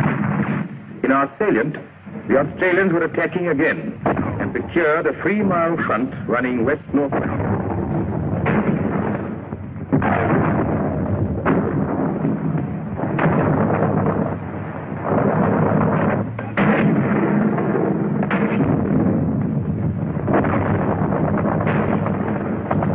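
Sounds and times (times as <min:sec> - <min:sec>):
artillery blasts: 0:00.0 - 0:22.9
rumbling battle din: 0:00.0 - 0:22.9.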